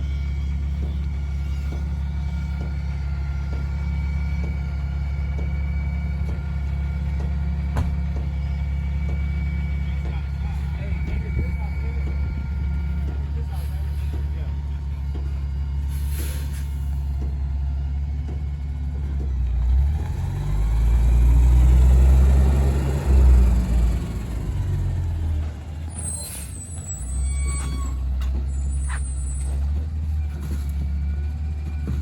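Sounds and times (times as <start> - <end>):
garbage truck diesel engine: 0.0 - 32.0
high short squeals: 25.9 - 29.6.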